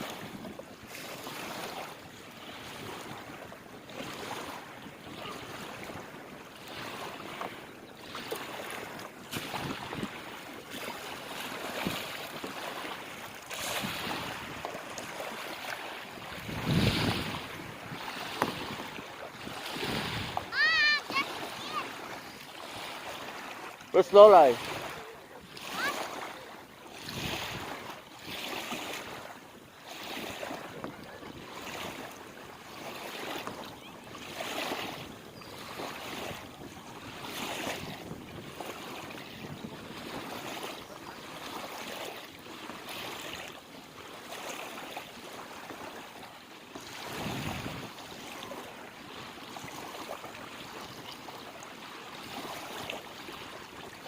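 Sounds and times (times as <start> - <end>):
lake water splashing and lapping: 0.0 - 54.0
wind on microphone: 4.4 - 11.0, 11.6 - 12.6, 13.5 - 22.8, 26.9 - 29.2, 30.0 - 32.1, 33.2 - 40.8, 46.9 - 48.2.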